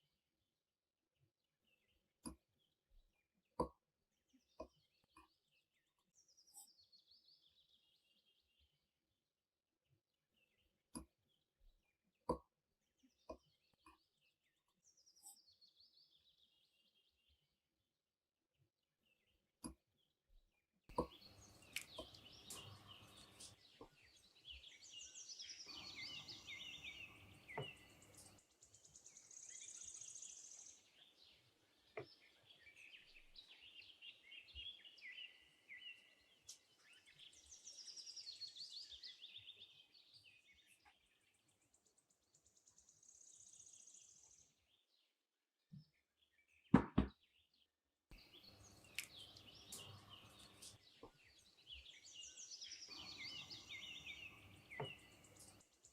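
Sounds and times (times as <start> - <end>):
faint birdsong chirping: 1.2 - 55.9
sharp knocks: 46.8 - 47.2.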